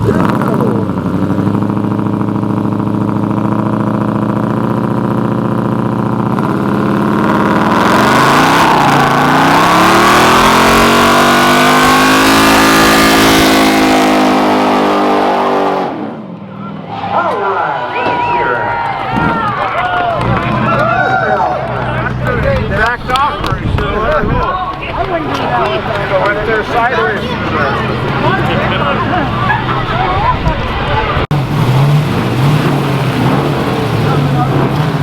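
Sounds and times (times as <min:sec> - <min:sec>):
car engine revving hard: 0:00.0 - 0:16.2, 0:25.5 - 0:35.0.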